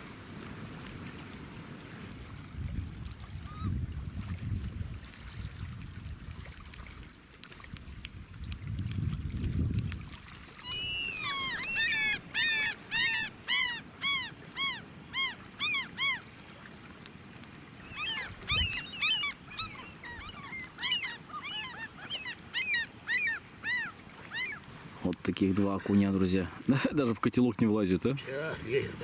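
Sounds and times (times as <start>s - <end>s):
gulls calling: 10.6s - 16.4s, 17.6s - 26.8s.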